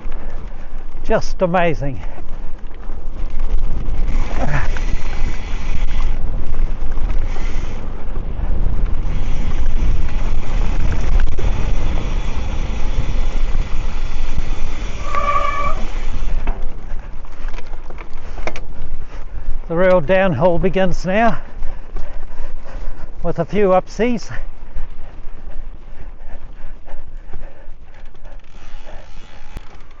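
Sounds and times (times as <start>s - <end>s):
dense low rumble: 0.0s - 29.6s
wind buffeting microphone: 0.0s - 30.0s
brief high-pitched squeal: 15.0s - 15.9s.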